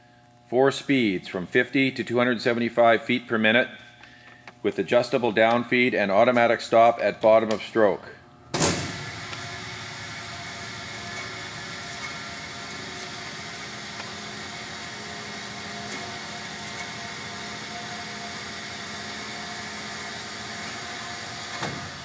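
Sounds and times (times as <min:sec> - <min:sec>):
bandsaw motor humming: 0:08.6 - 0:22.0.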